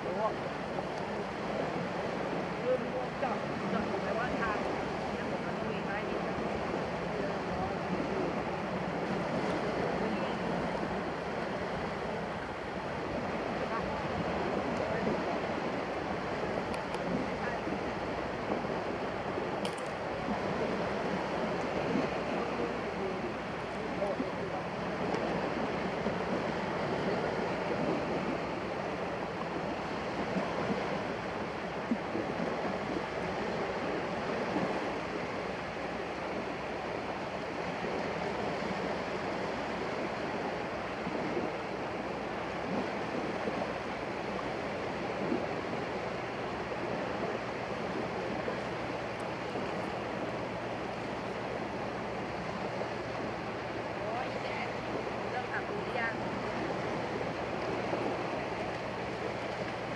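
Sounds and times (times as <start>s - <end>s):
surf washing onto beach: 0.0s - 59.9s.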